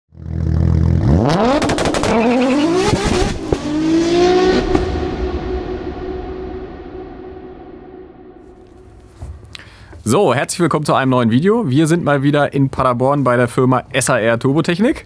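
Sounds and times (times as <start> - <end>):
sharp exhaust cracks: 0.2 - 3.8
car engine accelerating hard: 0.2 - 6.3.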